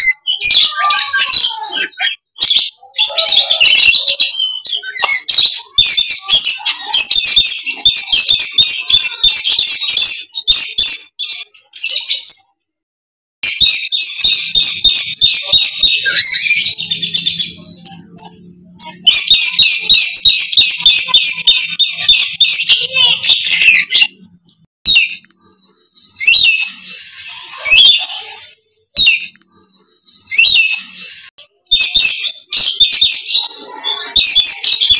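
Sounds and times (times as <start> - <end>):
parrots screeching: 0.0 - 12.4, 13.4 - 24.2, 26.2 - 29.4, 30.2 - 34.9.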